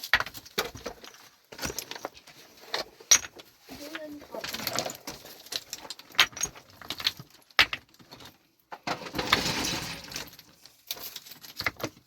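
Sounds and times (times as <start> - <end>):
stones knocking and clattering: 0.0 - 12.0
rattling scrape: 8.9 - 10.4.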